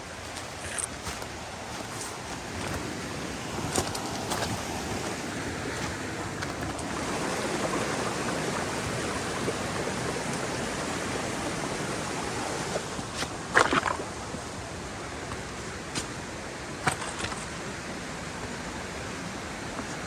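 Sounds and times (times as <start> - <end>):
river rushing: 0.0 - 20.0.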